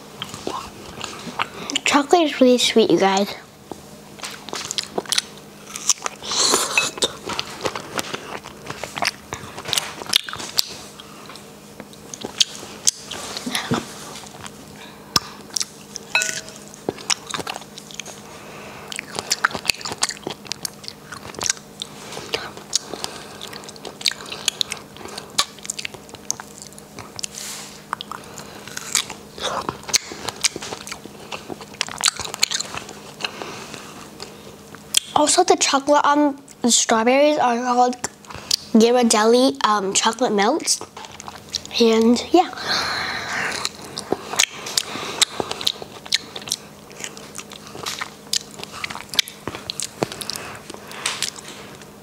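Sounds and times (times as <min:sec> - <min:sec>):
chewing and biting strawberry: 0:00.1 - 0:02.0, 0:03.7 - 0:35.2, 0:37.9 - 0:38.8, 0:40.0 - 0:42.0, 0:43.2 - 0:52.0
wet mouth clicks and smacks: 0:43.6 - 0:51.4.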